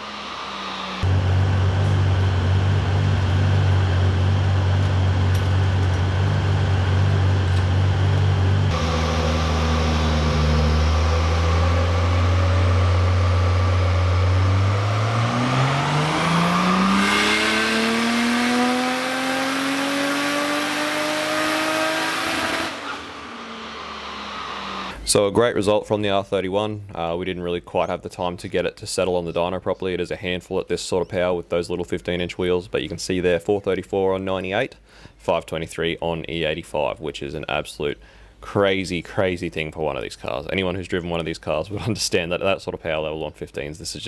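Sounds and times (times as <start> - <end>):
car engine revving on dyno: 0.0 - 25.0.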